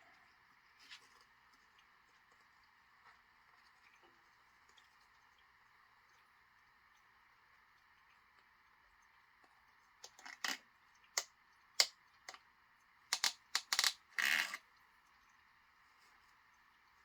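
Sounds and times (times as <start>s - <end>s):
plastic containers clicking: 13.2s - 14.0s.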